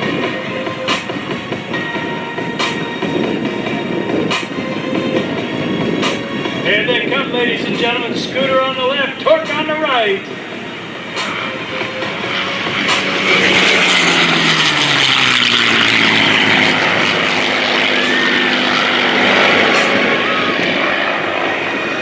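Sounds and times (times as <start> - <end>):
propeller planes passing: 0.0 - 22.0.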